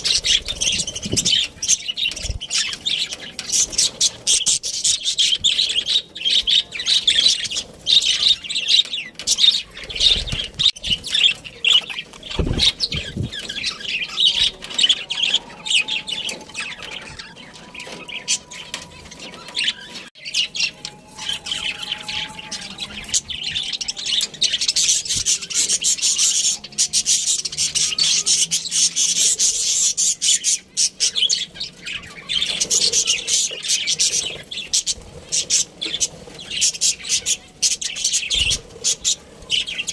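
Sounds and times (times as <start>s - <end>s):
budgerigars chirping and chattering: 0.0s - 39.9s
low thuds: 12.3s - 13.4s.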